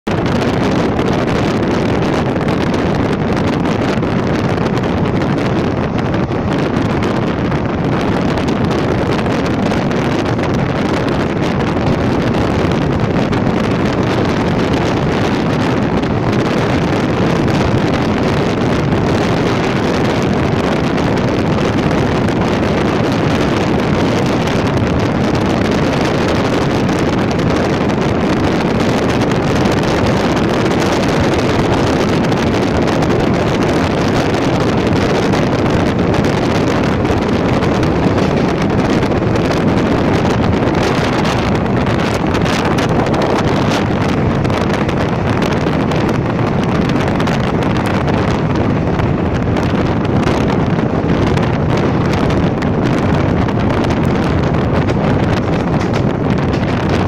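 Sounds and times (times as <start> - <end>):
moving train noise: 0.0 - 57.0
wind buffeting microphone: 0.0 - 57.0.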